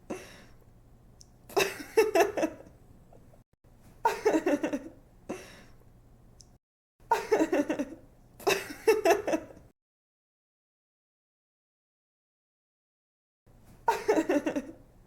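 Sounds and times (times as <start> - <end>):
woman giggling: 1.5 - 2.7, 4.0 - 5.0, 7.1 - 9.6, 13.9 - 14.8.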